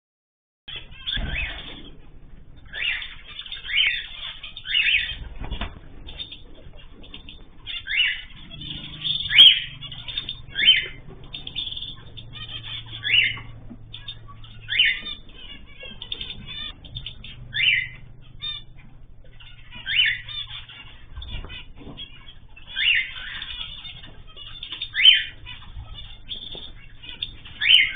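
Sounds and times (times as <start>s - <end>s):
birds chirping softly: 0.7s - 27.9s
loud bird call: 6.1s - 27.9s.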